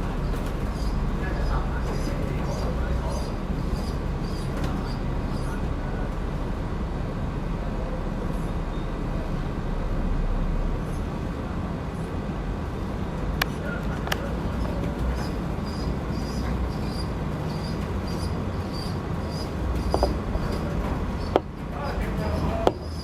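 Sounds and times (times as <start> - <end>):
low rumble: 5.2 - 13.4.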